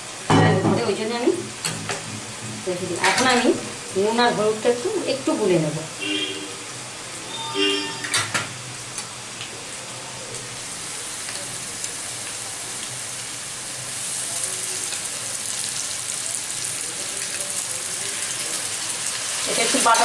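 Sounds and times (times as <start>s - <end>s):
potatoes frying in oil: 0.0s - 7.5s, 8.5s - 20.0s.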